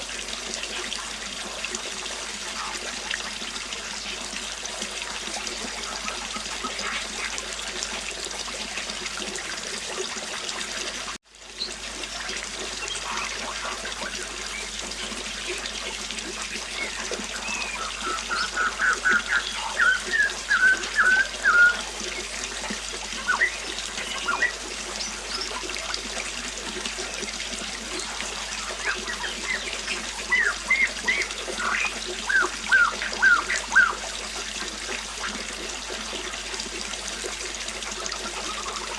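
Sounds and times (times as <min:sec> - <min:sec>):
river water flowing: 0:00.0 - 0:38.9
birds chirping: 0:12.8 - 0:15.6, 0:16.4 - 0:22.4, 0:23.0 - 0:25.7, 0:27.0 - 0:34.0.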